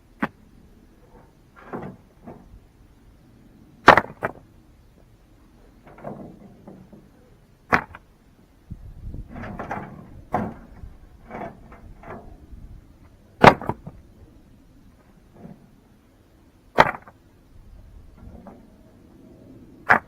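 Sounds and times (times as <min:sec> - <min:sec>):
soft scraping and shuffling: 0:17.6 - 0:19.8.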